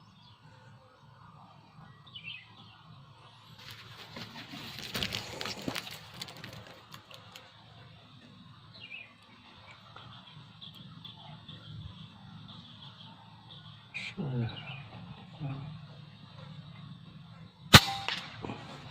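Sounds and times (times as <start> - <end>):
small bird chirping: 1.8 - 3.0
rustling and crackling with clicks: 3.6 - 7.6.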